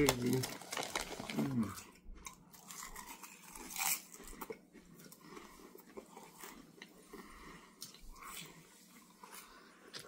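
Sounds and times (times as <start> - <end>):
potato chips crunching: 0.0 - 6.9.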